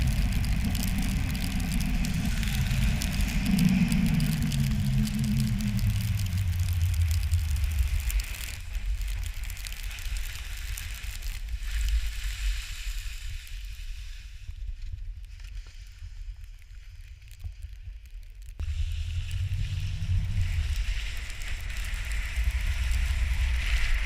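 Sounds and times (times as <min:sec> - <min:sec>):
wind buffeting microphone: 0:00.0 - 0:09.8, 0:18.6 - 0:24.0
skis sliding on snow: 0:00.0 - 0:18.0, 0:18.6 - 0:24.0.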